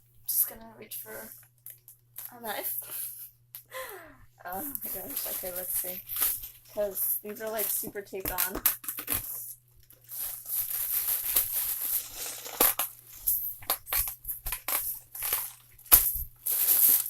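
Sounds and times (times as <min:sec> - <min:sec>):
packaging crinkling and tearing: 0:04.6 - 0:06.8, 0:07.5 - 0:17.0
knife cutting taped packaging: 0:10.2 - 0:13.0.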